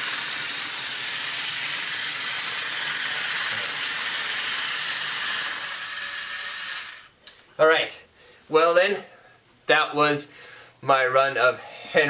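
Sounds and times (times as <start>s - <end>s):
toy train whirring on track: 0.0s - 7.1s.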